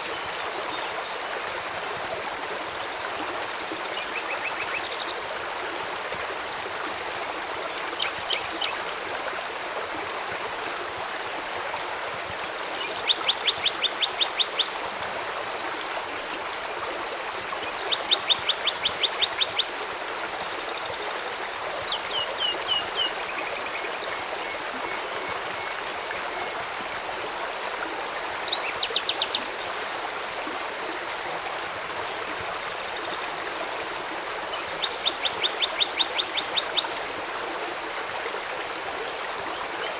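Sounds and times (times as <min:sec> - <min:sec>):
river water flowing: 0:00.0 - 0:39.9
small birds trilling: 0:12.8 - 0:14.8, 0:34.8 - 0:36.9.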